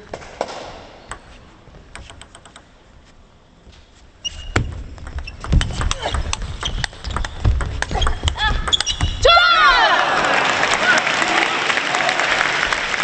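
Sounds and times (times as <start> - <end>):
table tennis ball clicks: 1.9 - 2.7, 4.6 - 9.1
shoe squeaks: 3.8 - 9.2.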